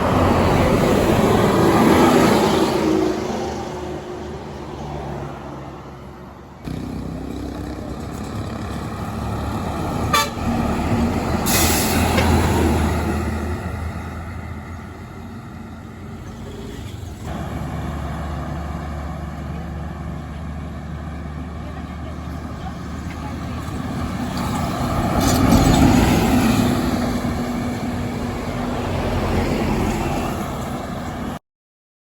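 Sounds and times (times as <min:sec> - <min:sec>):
heavy vehicle engine running: 0:06.0 - 0:31.4
horn toot: 0:10.0 - 0:10.6
air brake hiss: 0:11.4 - 0:12.4.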